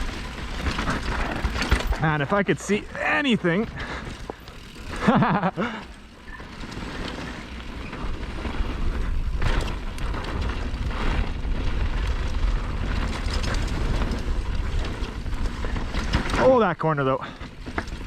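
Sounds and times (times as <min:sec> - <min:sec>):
mountain bike rolling on dirt: 0:00.0 - 0:18.0
person exclaiming: 0:02.7 - 0:03.4
wind rumbling on microphone: 0:06.0 - 0:16.4.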